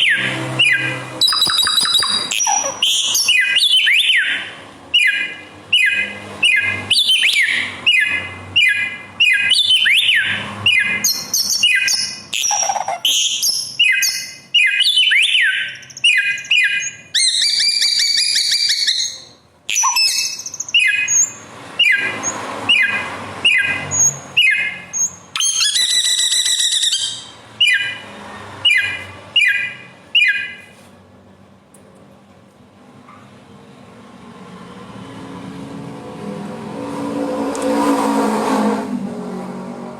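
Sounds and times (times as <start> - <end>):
bird singing varied song: 0.0 - 30.7.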